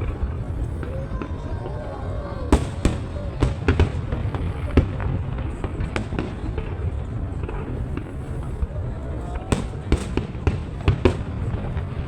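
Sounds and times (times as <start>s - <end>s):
distant explosions rumbling: 0.0s - 12.0s
fireworks sharp bangs: 2.5s - 8.6s, 9.4s - 12.0s.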